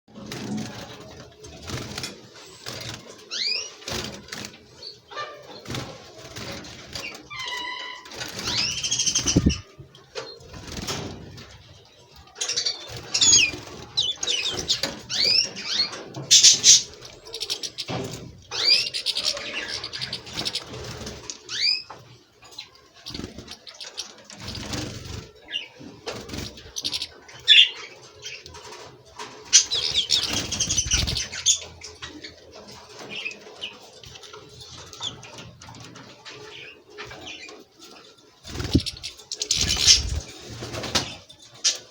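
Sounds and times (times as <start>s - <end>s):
birds twittering: 2.4s - 41.9s
wing flutters: 5.6s - 11.6s, 23.0s - 25.4s, 28.6s - 31.8s, 38.4s - 41.9s.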